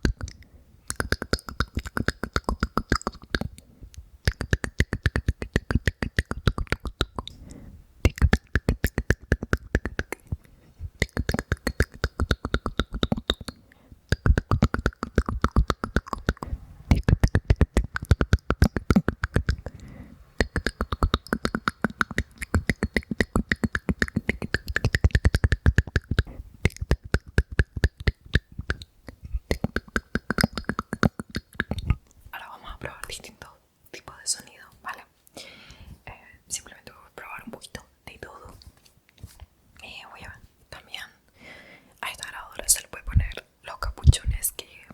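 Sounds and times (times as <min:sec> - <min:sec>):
wet mouth clicks and pops: 0:00.0 - 0:10.4, 0:11.0 - 0:32.2.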